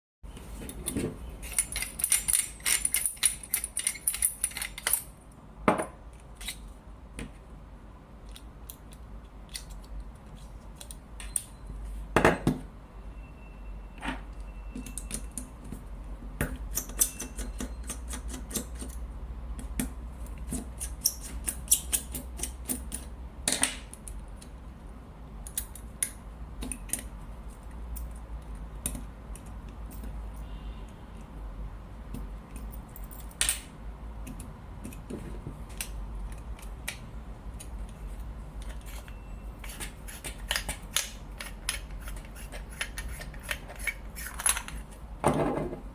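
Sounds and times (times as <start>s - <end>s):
small metal parts clicking: 1.4s - 5.2s, 20.5s - 24.5s, 35.7s - 45.0s.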